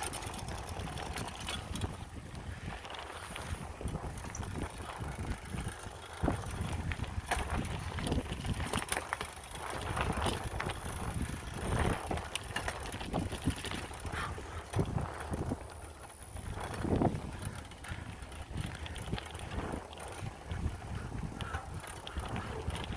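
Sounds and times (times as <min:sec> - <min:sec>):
bicycle tyres rolling on dirt: 0:00.0 - 0:22.9
bike rattling over bumps: 0:00.0 - 0:22.9.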